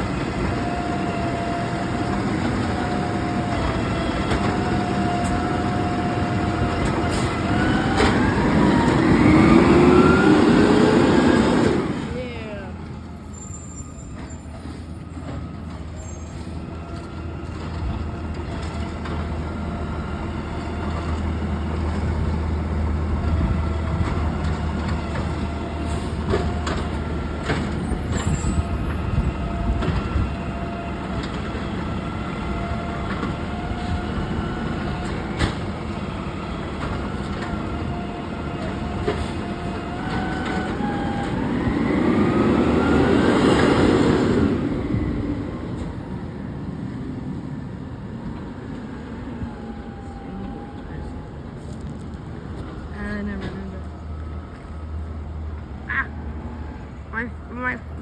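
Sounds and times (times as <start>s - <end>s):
garbage truck engine running: 0.0s - 46.0s.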